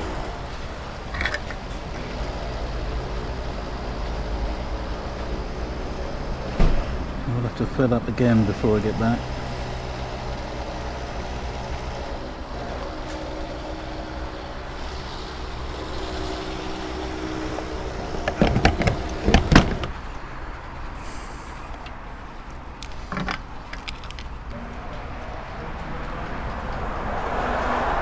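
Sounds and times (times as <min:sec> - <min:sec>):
loud clattering knocks: 0:00.0 - 0:20.7
small motorcycle engine running: 0:00.0 - 0:20.9.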